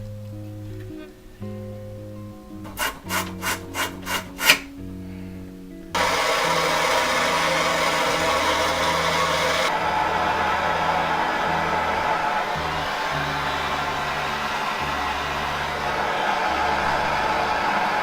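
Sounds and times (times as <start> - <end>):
background music: 0.0 - 18.0
loud steady hiss: 2.6 - 18.0
rasping strokes on metal: 2.7 - 4.7.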